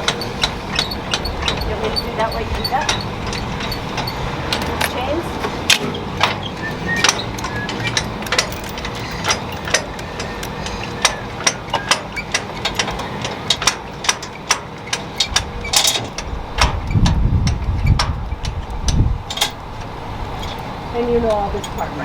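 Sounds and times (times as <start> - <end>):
metal chains clinking: 0.0 - 5.2, 6.2 - 11.2, 20.4 - 22.0
heavy low rumble: 0.0 - 11.2, 15.2 - 22.0
truck engine idling: 0.0 - 22.0.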